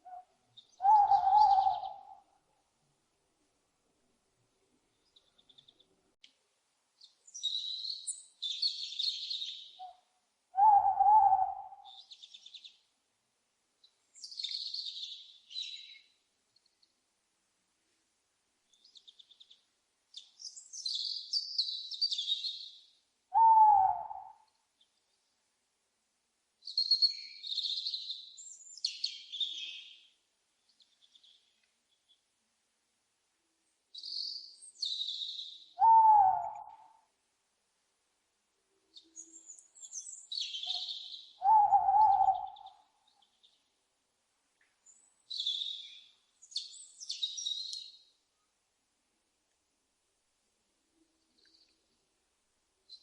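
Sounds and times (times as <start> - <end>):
owl hooting: 0.0 - 2.3, 9.8 - 12.1, 23.3 - 24.5, 35.8 - 37.1, 40.5 - 42.9
songbirds chirping: 0.0 - 53.0.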